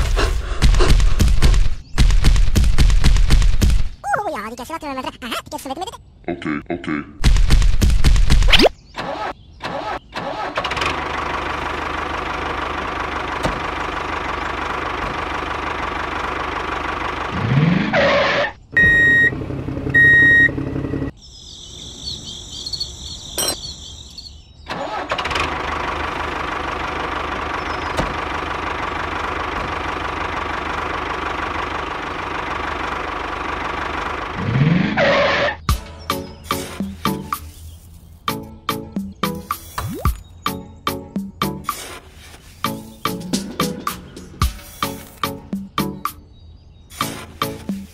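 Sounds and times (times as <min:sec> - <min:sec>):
model tractor motor running: 0:10.3 - 0:18.4, 0:24.7 - 0:34.4.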